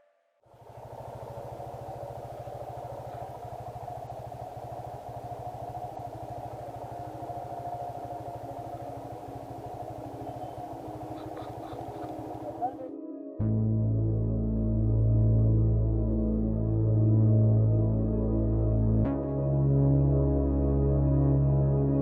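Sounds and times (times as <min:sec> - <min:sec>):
motorcycle engine running: 0:00.5 - 0:12.9.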